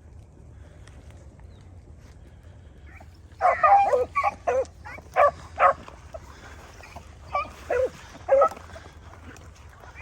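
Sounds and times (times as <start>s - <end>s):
hounds baying and barking: 2.9s - 10.0s.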